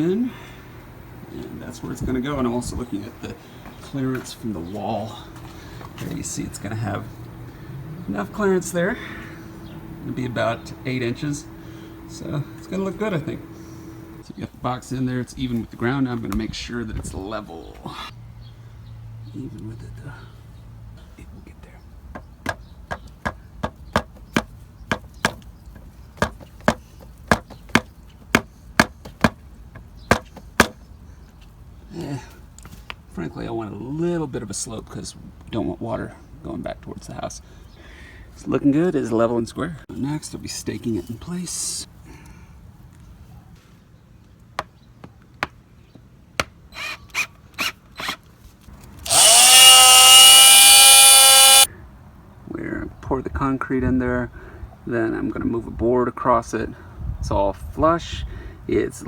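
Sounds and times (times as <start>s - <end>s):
power drill whining: 9.1s - 14.2s, 49.0s - 51.7s
hammer knocking on wooden boards: 22.1s - 25.4s, 26.2s - 29.4s, 30.1s - 30.8s.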